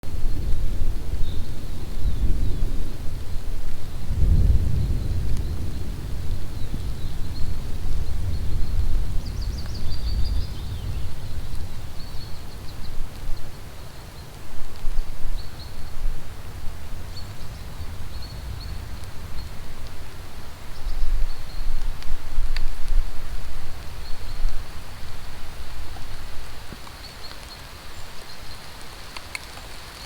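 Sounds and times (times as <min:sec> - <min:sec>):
rain hissing: 0:00.0 - 0:30.0
bird chirping: 0:06.3 - 0:14.3.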